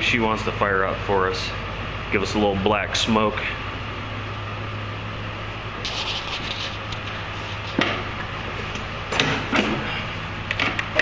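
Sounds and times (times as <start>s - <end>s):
steady low hum: 0.0s - 11.0s
rubbing and scraping handling noises: 5.8s - 8.1s.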